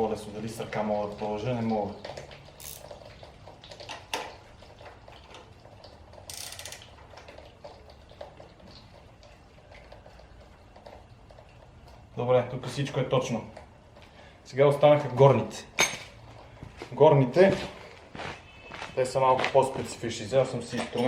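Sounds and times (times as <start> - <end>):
wrench clicking on metal: 2.6 - 2.8, 6.3 - 6.8.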